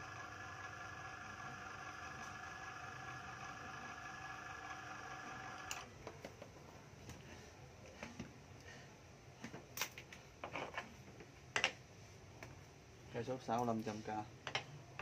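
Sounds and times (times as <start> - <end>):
cordless drill motor running: 0.0 - 5.9.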